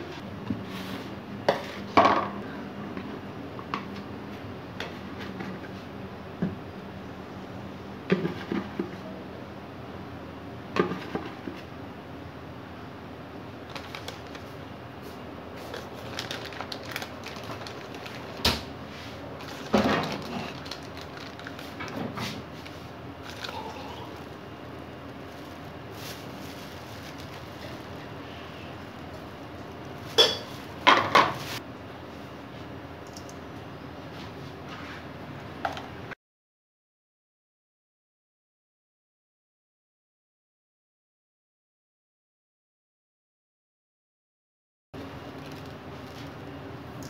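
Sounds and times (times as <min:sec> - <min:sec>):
low background hum: 0:00.0 - 0:36.2, 0:45.0 - 0:47.0
dishes and utensils clattering: 0:30.2 - 0:31.4.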